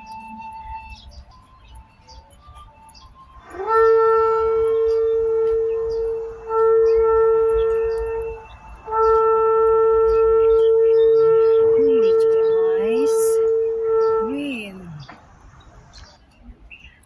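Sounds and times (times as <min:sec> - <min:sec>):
long horn-like note: 0:03.4 - 0:15.0.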